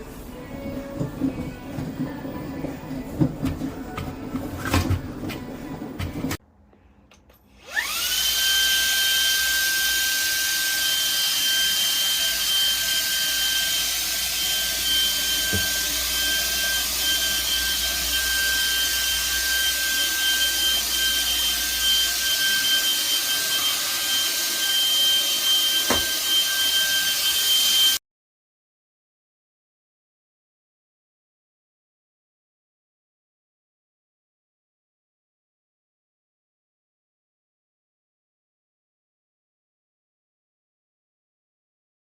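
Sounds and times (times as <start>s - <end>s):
handheld vacuum motor whining: 7.5s - 28.0s.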